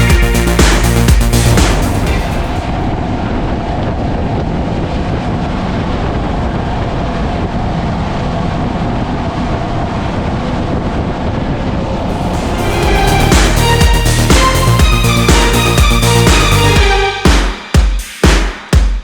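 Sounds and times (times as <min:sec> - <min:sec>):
rush of water noise: 0:11.8 - 0:16.9.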